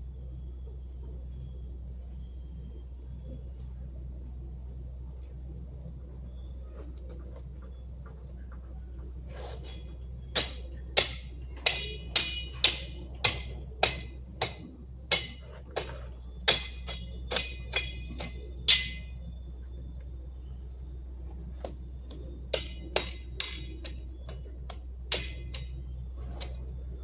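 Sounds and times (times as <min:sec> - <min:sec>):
low hum: 0:00.0 - 0:27.0
sharp ringing strikes: 0:10.4 - 0:15.5, 0:16.4 - 0:19.3.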